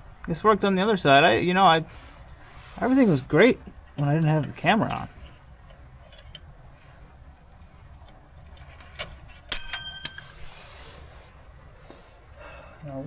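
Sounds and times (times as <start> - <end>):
metal tools clicking: 9.5 - 10.4
small metal part ringing: 9.5 - 10.4.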